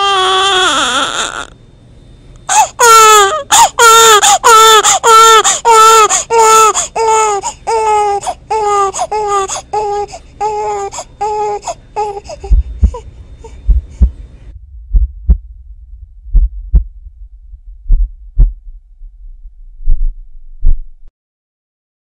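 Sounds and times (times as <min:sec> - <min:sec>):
baby crying: 0:00.0 - 0:01.5, 0:02.5 - 0:13.6
heartbeat thumping: 0:12.4 - 0:21.0.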